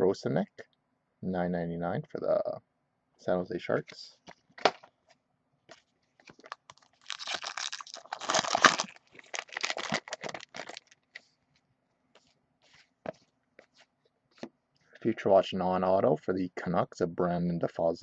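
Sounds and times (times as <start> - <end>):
foil pack crinkling and tearing: 6.4 - 11.0.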